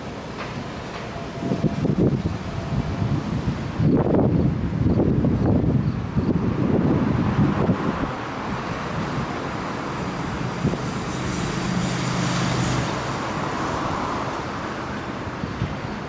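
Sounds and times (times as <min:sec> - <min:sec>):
traffic noise: 0:00.0 - 0:16.0
vehicle passing: 0:07.6 - 0:14.7.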